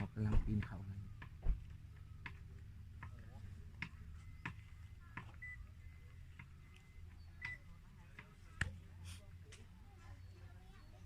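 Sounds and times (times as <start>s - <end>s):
vehicle hum on rough road: 0.0s - 11.0s.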